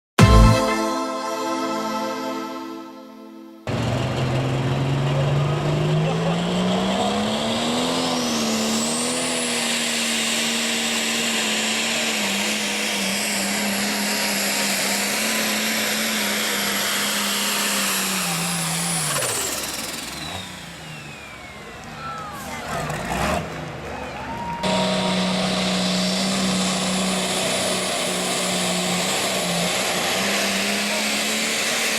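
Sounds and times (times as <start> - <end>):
tractor diesel engine at full throttle: 3.8 - 19.2, 24.6 - 31.9
high turbo whine: 24.6 - 31.9.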